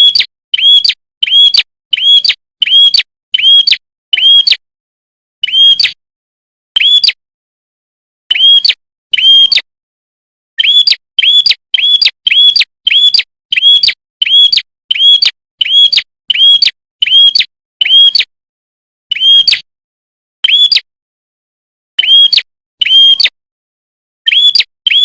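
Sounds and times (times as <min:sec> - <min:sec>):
small bird chirping: 0:00.0 - 0:04.6, 0:05.4 - 0:06.0, 0:06.8 - 0:07.2, 0:08.3 - 0:09.7, 0:10.6 - 0:18.3, 0:19.1 - 0:19.7, 0:20.4 - 0:20.9, 0:22.0 - 0:23.4, 0:24.2 - 0:25.0.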